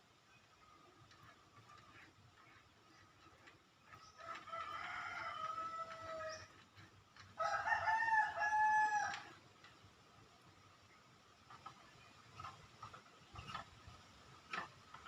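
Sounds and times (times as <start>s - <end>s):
rooster crowing: 4.4s - 6.4s, 7.4s - 9.3s.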